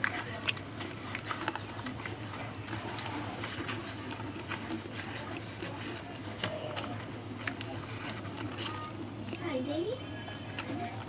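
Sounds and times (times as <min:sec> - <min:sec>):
person chewing crunchily: 0:00.0 - 0:09.4.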